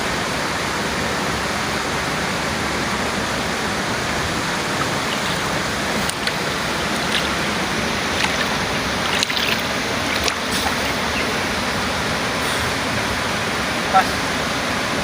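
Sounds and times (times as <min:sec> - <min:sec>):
water rushing: 0:02.7 - 0:14.7.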